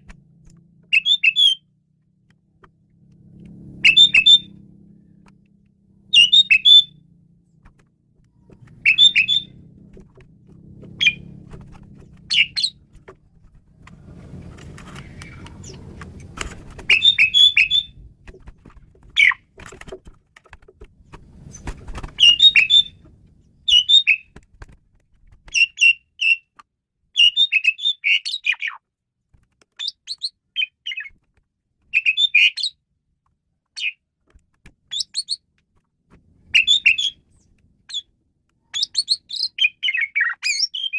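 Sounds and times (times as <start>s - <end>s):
starling singing: 0.9s - 1.7s, 3.8s - 4.6s, 6.0s - 7.0s, 8.6s - 9.8s, 10.9s - 13.1s, 14.8s - 16.1s, 16.7s - 18.0s, 19.1s - 19.5s, 21.5s - 24.3s, 31.9s - 32.8s, 36.5s - 38.1s, 38.7s - 40.9s.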